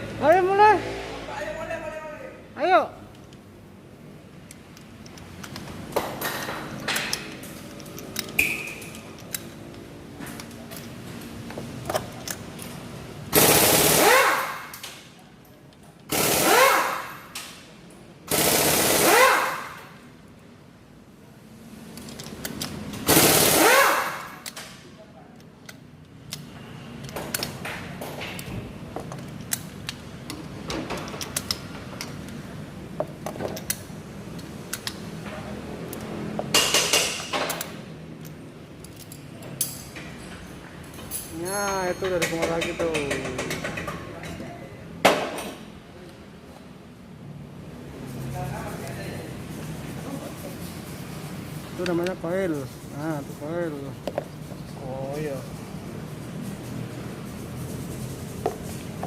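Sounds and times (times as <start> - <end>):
air power tool whirring: 13.4 - 14.7, 16.1 - 17.2, 18.3 - 19.9, 23.0 - 24.4.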